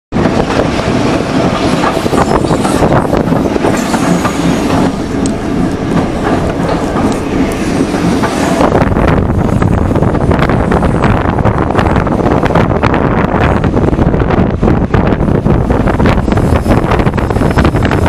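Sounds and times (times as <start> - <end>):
train rumble and rattle: 0.1 - 18.0
train wheels clattering over joints: 0.2 - 9.1.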